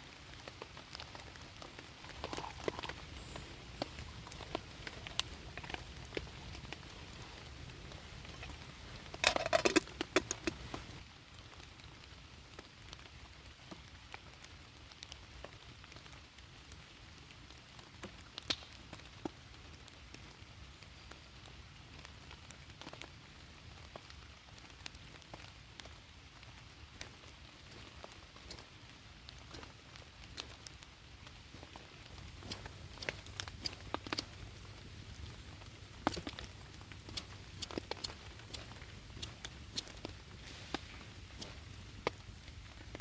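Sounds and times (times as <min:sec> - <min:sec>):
rain patter: 0:00.0 - 0:43.0
sharp drips: 0:02.0 - 0:11.0, 0:32.1 - 0:43.0.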